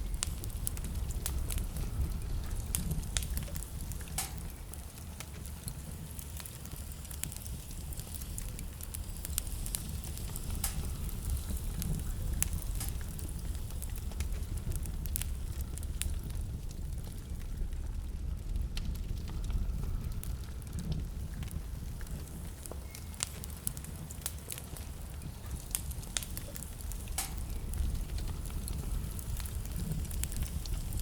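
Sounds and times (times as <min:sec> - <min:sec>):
blizzard wind rumbling: 0:00.0 - 0:31.0
wood fire crackling and popping: 0:00.0 - 0:31.0.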